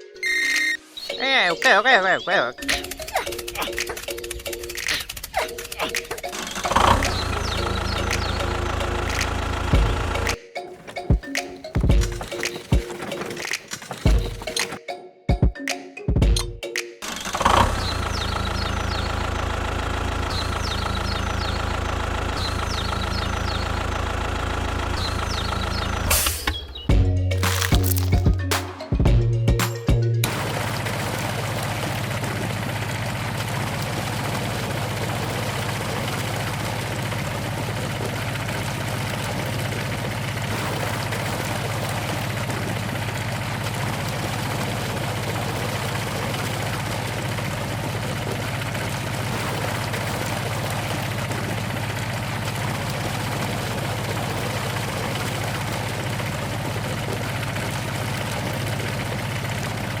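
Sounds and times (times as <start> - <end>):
steady engine-like hum: 4.4 - 10.4, 17.2 - 26.3.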